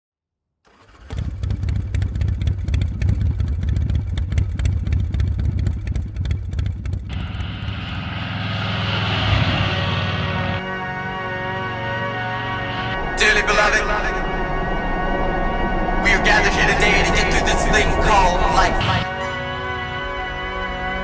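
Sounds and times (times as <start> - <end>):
motorcycle engine running: 1.0 - 10.6.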